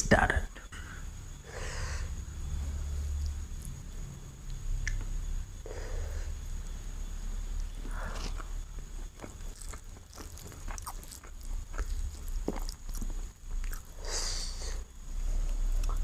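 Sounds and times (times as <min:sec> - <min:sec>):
biting and chewing food: 0:07.6 - 0:14.0.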